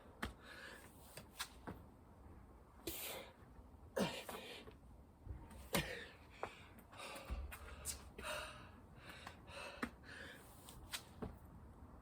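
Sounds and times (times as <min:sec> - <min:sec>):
man breathing hard: 0:05.7 - 0:10.6.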